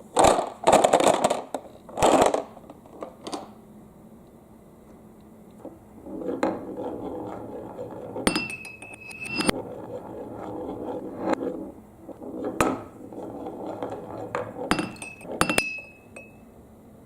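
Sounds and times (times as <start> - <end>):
marbles rolling down a track: 0.2 - 2.6, 6.0 - 15.5
steady ringing tone: 6.5 - 11.6, 12.8 - 16.5.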